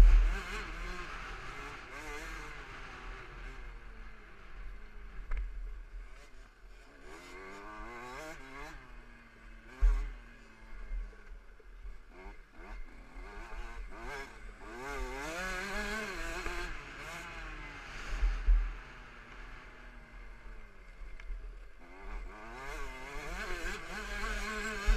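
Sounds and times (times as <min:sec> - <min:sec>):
motocross engine revving: 0:00.0 - 0:03.8, 0:06.8 - 0:10.7, 0:12.1 - 0:19.8, 0:21.8 - 0:24.9.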